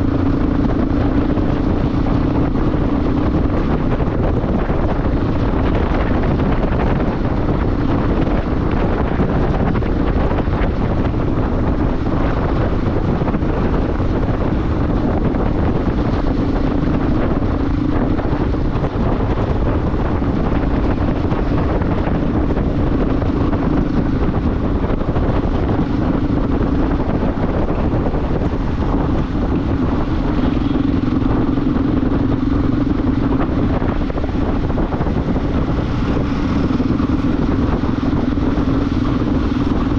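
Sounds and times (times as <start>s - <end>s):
motorcycle engine cruising: 0.0s - 39.9s
wind rushing on microphone: 0.0s - 39.9s.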